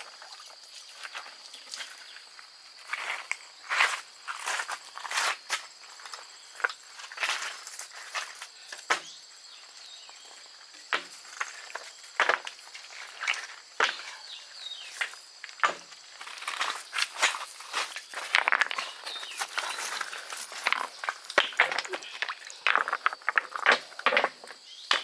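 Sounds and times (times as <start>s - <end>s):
rustling in dry undergrowth: 16.0s - 22.6s.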